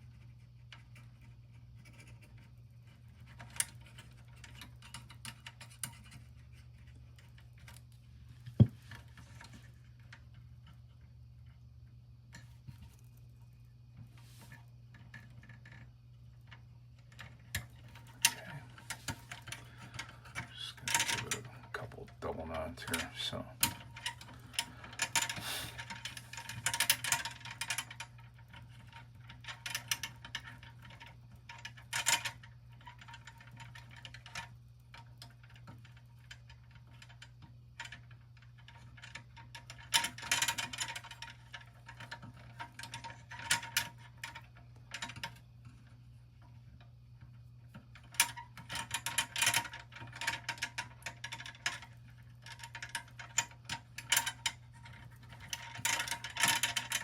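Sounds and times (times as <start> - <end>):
steady low hum: 0.0 - 35.2.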